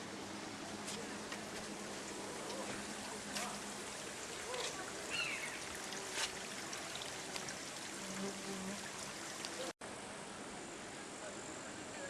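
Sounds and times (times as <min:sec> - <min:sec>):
waterfall rushing: 0:01.7 - 0:07.9.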